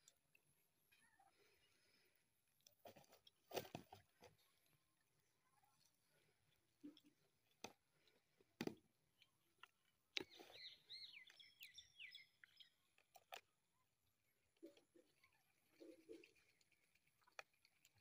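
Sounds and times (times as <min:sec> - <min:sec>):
bird chirping: 0:10.2 - 0:13.3.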